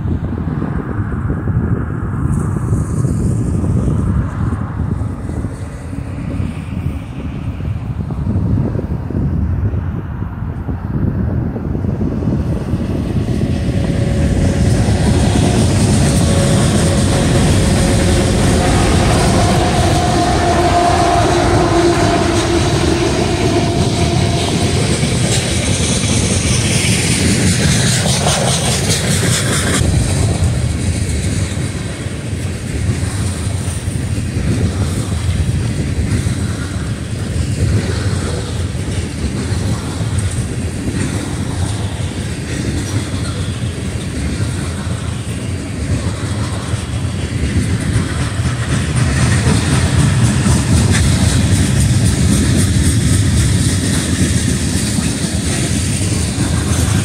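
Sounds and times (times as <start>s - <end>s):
freight train rumbling past: 0.0s - 57.0s
wheels clacking over rail joints: 13.4s - 57.0s.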